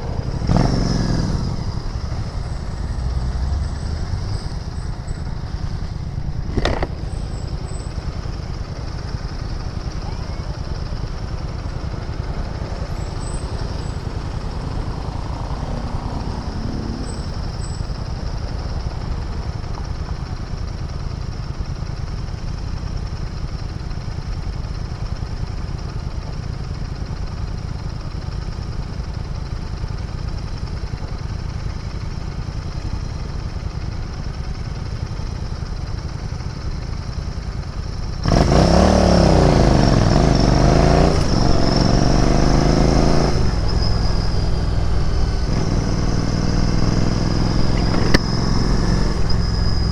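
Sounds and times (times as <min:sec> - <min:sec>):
motorcycle engine idling steadily: 0:00.0 - 0:49.9
sharp click: 0:06.5 - 0:07.1, 0:47.8 - 0:48.4.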